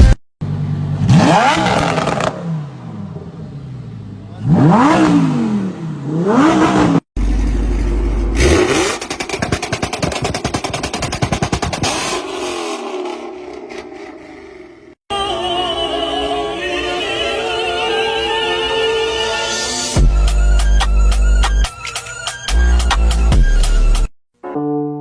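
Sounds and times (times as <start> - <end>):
car engine revving: 0.6 - 15.0.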